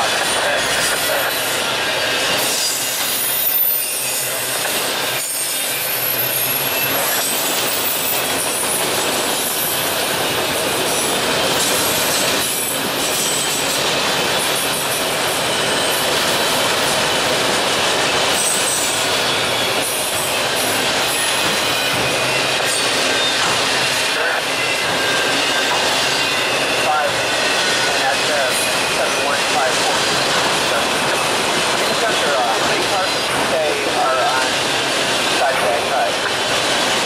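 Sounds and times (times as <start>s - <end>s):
high wheel squeals: 0.6s - 14.7s, 18.3s - 29.4s.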